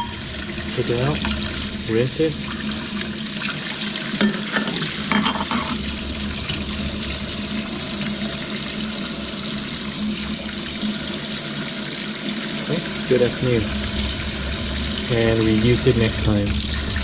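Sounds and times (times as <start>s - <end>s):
tap water running over metal filter: 0.0s - 17.0s.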